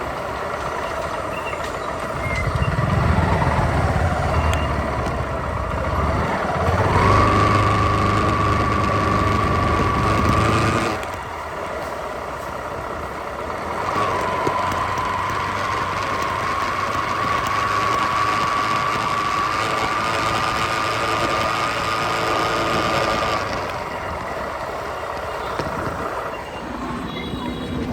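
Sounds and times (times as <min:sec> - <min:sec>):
motorcycle engine running: 0:00.0 - 0:27.9
high whine: 0:13.7 - 0:27.9.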